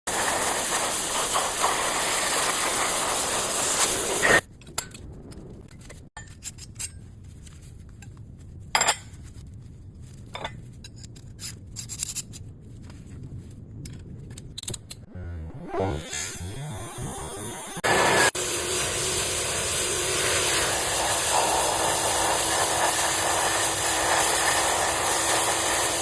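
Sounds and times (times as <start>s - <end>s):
cutting torch hissing: 0.1s - 4.4s, 17.2s - 26.0s.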